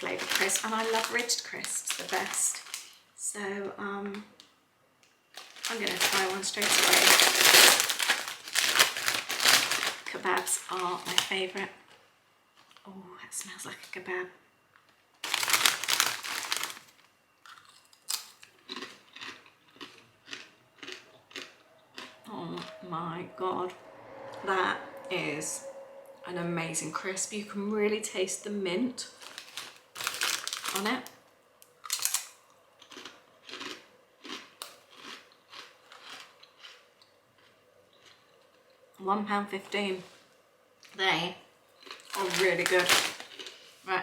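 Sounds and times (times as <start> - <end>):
crisps being crunched: 0.0 - 3.0, 5.4 - 11.7, 15.2 - 22.7, 29.1 - 31.2, 31.8 - 36.8, 41.8 - 43.7.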